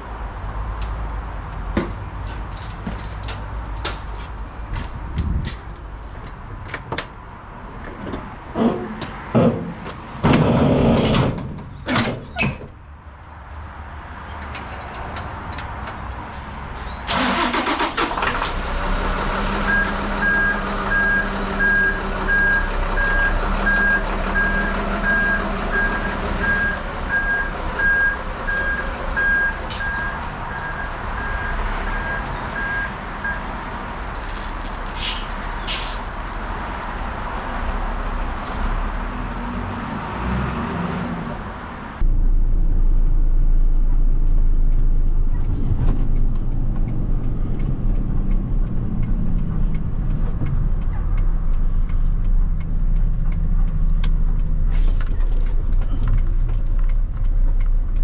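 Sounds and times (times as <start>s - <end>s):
knocks and clunks: 7.8s - 12.8s
diesel truck engine running: 17.1s - 40.0s, 41.3s - 58.0s
reversing alarm beeping: 19.7s - 33.4s.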